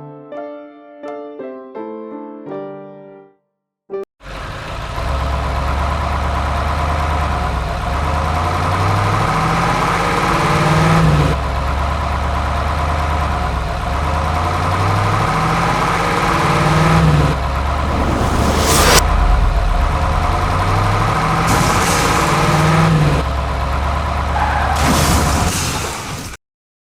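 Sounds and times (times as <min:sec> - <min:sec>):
vehicle engine revving: 0:04.2 - 0:25.0.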